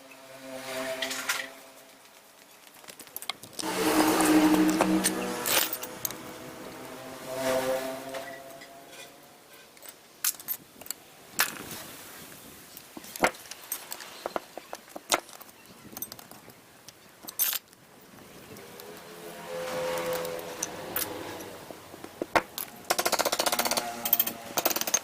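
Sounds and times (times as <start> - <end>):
metal tools clinking on workbench: 3.1 - 6.2, 17.2 - 17.8, 20.0 - 25.0.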